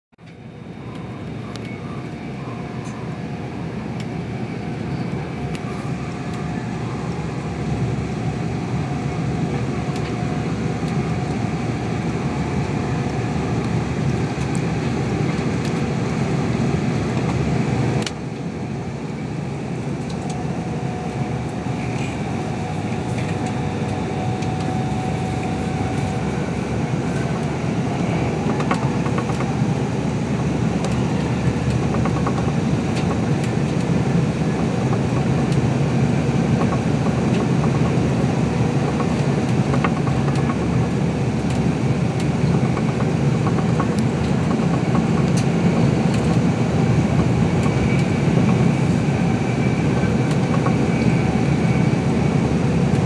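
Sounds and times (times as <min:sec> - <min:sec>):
train running rumble: 0:00.2 - 0:53.0
faint steady whine: 0:17.4 - 0:53.0.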